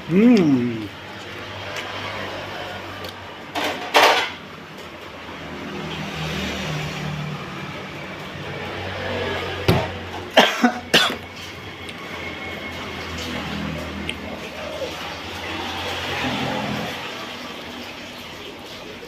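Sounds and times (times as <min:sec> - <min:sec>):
person eating mouth sounds: 0:00.0 - 0:01.3, 0:13.8 - 0:15.0.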